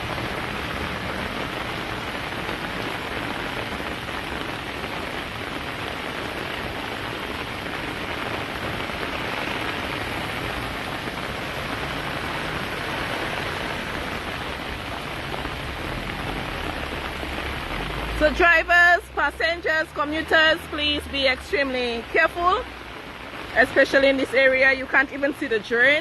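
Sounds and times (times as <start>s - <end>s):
heavy rain on standing water: 0.0s - 26.0s.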